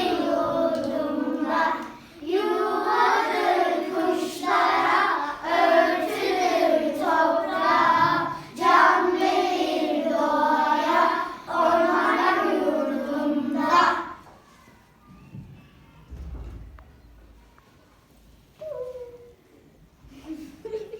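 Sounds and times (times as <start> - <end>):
children singing: 0.0 - 14.2.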